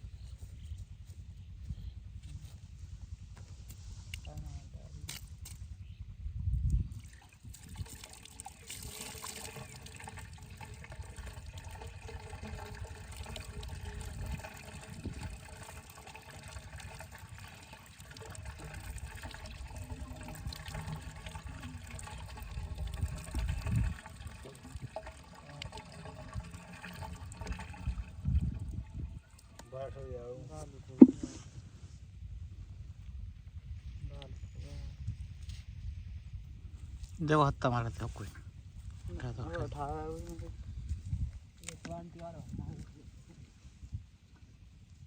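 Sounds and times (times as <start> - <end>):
low rumble: 0.0 - 7.0, 27.3 - 29.2
water pouring: 7.0 - 29.6.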